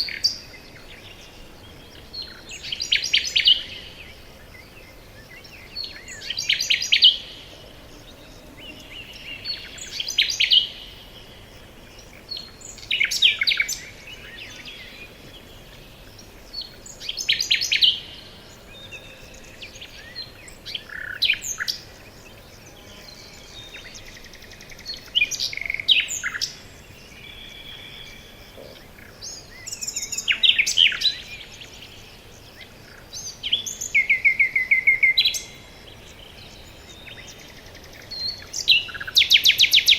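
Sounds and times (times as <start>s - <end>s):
songbird singing rapid phrases: 0.0s - 39.9s.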